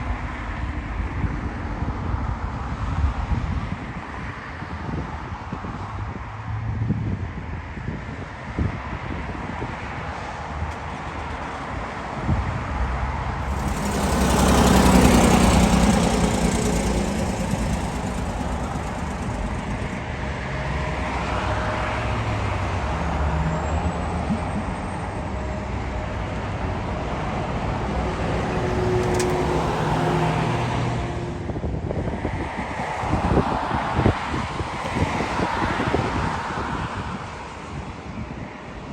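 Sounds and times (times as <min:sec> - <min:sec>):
engine rumble passing: 0:13.3 - 0:36.0.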